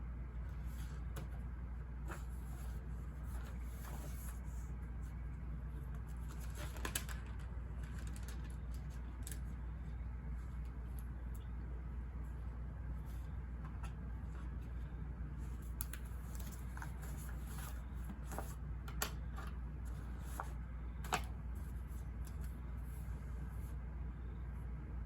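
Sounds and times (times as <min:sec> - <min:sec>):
low white-noise hum: 0:00.0 - 0:25.0
paper rustling: 0:02.0 - 0:05.2, 0:05.8 - 0:09.8, 0:15.4 - 0:23.0.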